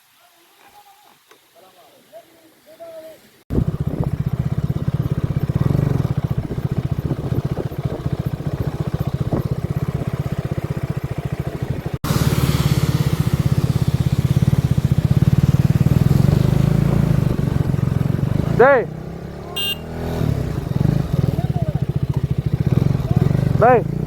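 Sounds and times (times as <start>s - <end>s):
wind hiss: 0.0s - 18.6s
motorcycle engine running: 3.5s - 24.0s.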